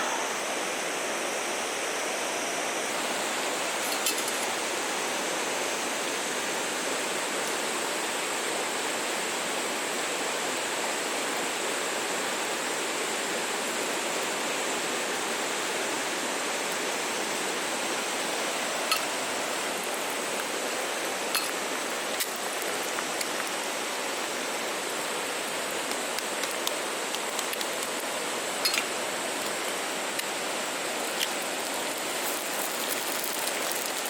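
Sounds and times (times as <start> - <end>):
flowing water rushing: 0.0 - 34.0.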